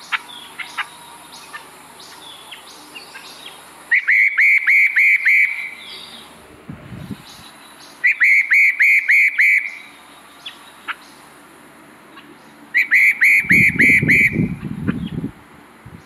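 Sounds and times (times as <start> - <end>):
bird whistling descending notes: 2.2 - 6.3, 7.2 - 10.6, 12.7 - 15.2
low rumble: 6.4 - 7.5.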